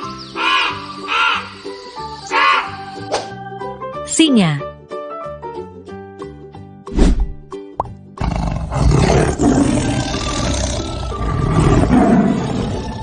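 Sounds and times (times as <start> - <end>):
children's background music: 0.0 - 8.2
lion roaring: 8.2 - 13.0.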